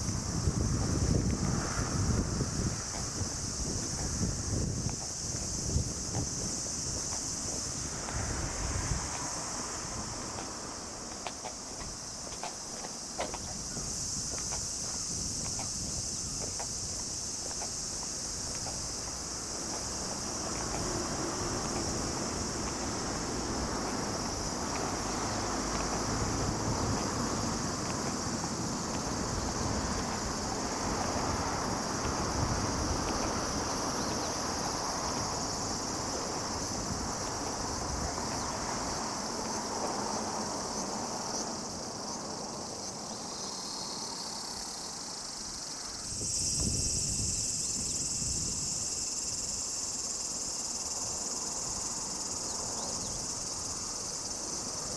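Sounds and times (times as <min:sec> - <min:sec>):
wind noise on microphone: 0:00.0 - 0:12.2, 0:13.0 - 0:39.6, 0:46.0 - 0:49.7
high-pitched insect chorus: 0:00.0 - 0:54.9.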